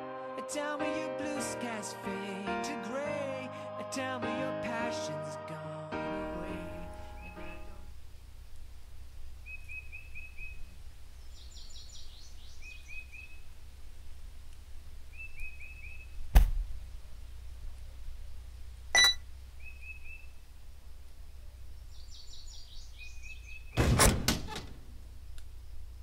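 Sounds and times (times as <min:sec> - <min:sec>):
small birds chirping: 0:06.9 - 0:16.3, 0:17.7 - 0:23.8
sharp thump: 0:16.3 - 0:16.7, 0:23.8 - 0:24.7
vending machine beep: 0:19.0 - 0:19.2.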